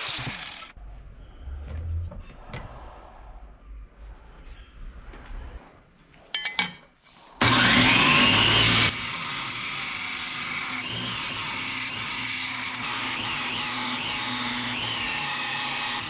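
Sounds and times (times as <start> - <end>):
electric power tool whine: 0.0 - 0.8, 7.4 - 16.0.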